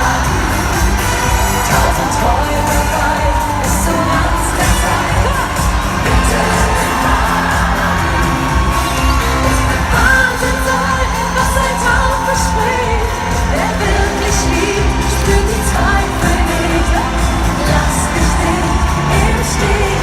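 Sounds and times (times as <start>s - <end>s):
crowd noise: 0.0s - 20.0s
pop music over sound system: 0.0s - 20.0s.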